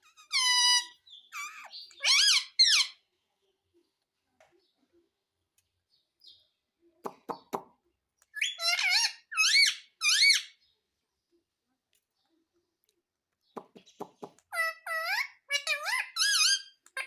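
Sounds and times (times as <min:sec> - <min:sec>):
parrot high-pitched calls: 0:00.0 - 0:03.0, 0:08.4 - 0:10.6, 0:14.5 - 0:17.0.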